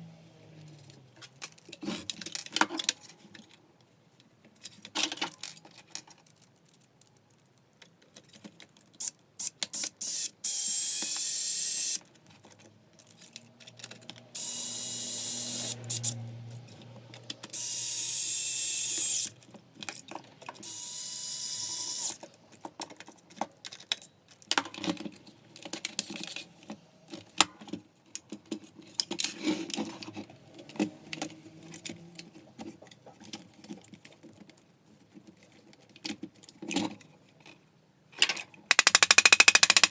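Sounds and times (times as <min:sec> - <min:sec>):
electric screwdriver whining: 0:10.0 - 0:12.0, 0:14.4 - 0:16.2, 0:17.5 - 0:19.3, 0:20.6 - 0:22.2, 0:38.7 - 0:39.9
parts clicking and rattling: 0:11.8 - 0:20.7, 0:38.2 - 0:39.9.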